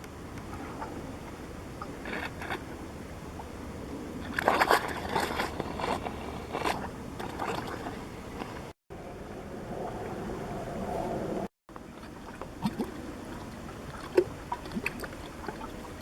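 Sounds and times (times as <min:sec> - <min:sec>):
mud bubbling and popping: 0:04.3 - 0:08.1, 0:11.8 - 0:16.0.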